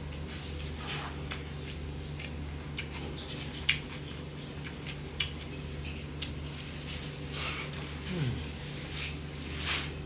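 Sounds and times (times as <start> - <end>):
steady low hum: 0.0 - 10.0
wet chewing: 1.2 - 6.4.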